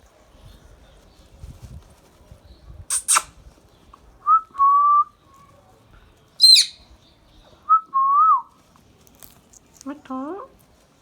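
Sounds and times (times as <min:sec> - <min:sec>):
parrot squawking: 0:02.9 - 0:03.3, 0:06.4 - 0:06.8
parrot whistling: 0:06.4 - 0:06.8
sharp high chirp: 0:06.4 - 0:06.8.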